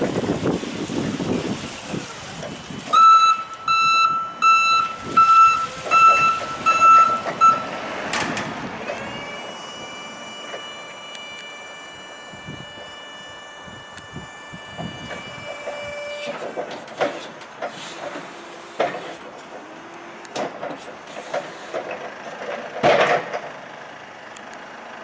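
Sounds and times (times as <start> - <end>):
forklift warning beeps: 2.8 - 17.3.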